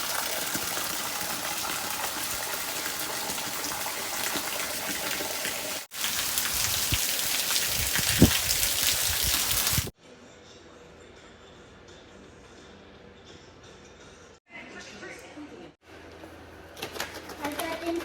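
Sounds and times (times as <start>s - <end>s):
steady rain falling: 5.8s - 9.9s.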